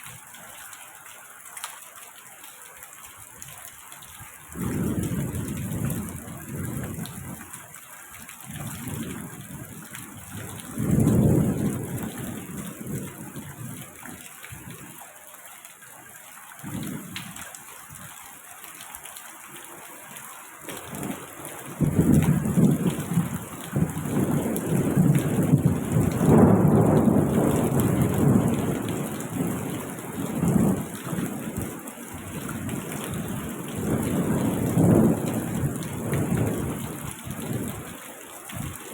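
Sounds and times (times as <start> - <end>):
rain hiss: 0.0 - 38.9
thunder rumbling: 8.6 - 13.9, 20.7 - 37.9.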